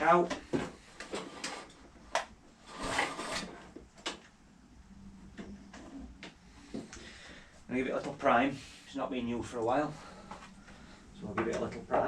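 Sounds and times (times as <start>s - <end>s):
scraping rustle: 2.6s - 3.7s.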